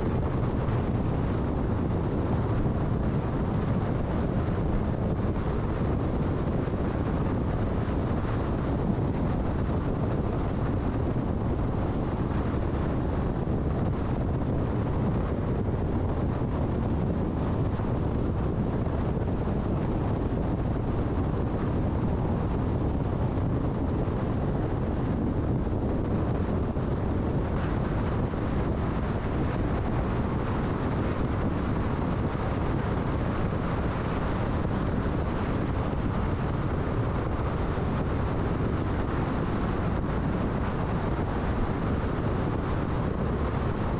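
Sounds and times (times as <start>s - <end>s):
car road and wind noise: 0.0s - 43.9s.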